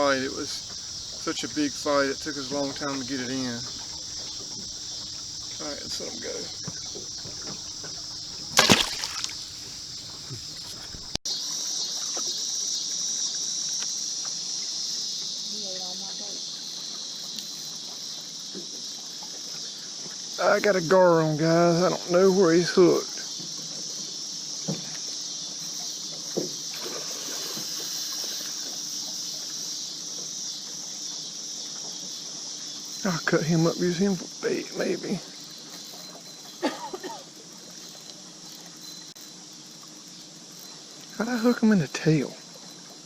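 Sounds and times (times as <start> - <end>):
crickets chirping: 0.0 - 11.2
faint ticks: 0.0 - 11.2
fish splashing in river: 0.0 - 11.2
insects droning: 0.0 - 11.2
short knocks: 0.3 - 11.2.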